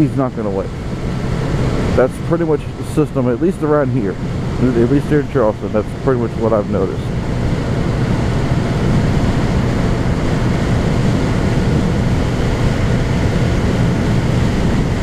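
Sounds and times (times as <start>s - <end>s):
motorcycle engine running: 0.0s - 15.0s
wind noise on microphone: 7.0s - 15.0s.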